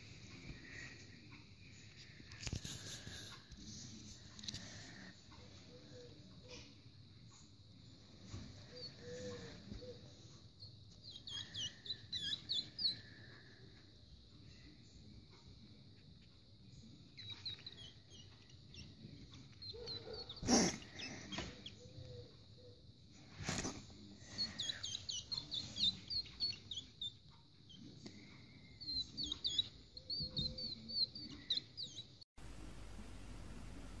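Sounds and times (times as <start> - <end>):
hedgehogs squeaking: 8.6 - 13.4, 16.8 - 22.8, 23.5 - 32.2.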